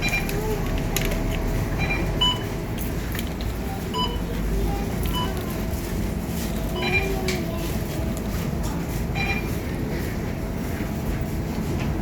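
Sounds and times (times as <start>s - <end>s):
diesel bus engine running: 0.0s - 12.0s
short electronic beeps: 1.8s - 2.5s, 9.2s - 9.5s.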